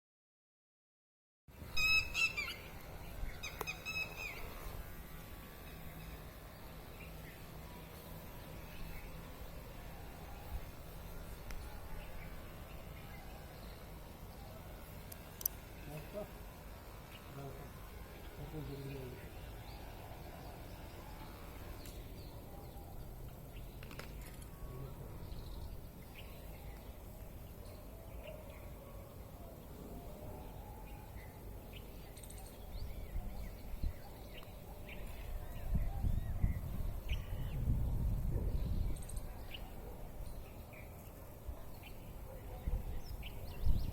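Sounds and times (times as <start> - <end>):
bird calling: 1.7 - 2.8, 3.4 - 4.8
small birds chirping: 1.7 - 43.9.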